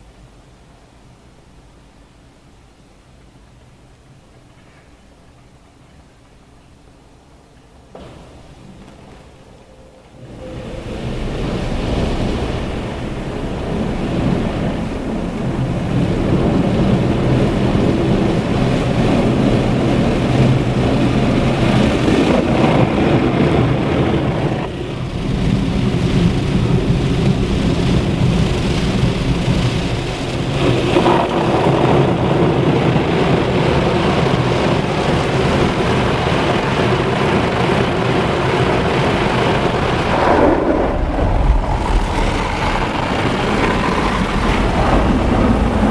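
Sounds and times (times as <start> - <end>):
rotating car wash equipment: 10.1 - 45.9
water spray: 24.7 - 32.5
low motor hum: 38.1 - 45.9.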